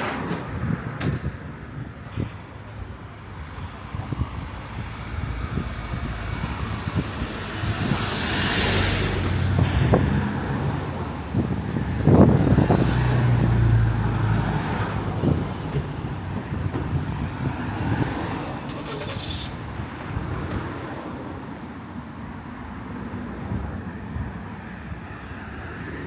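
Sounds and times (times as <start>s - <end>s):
low hum of engines: 0.0s - 26.0s
vehicle passing close by: 3.3s - 21.7s.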